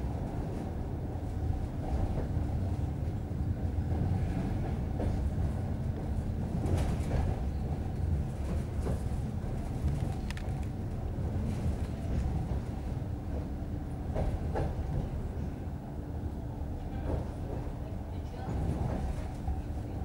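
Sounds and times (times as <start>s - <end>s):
train wheels rumbling: 0.0s - 20.0s
faint clicks: 9.8s - 10.8s.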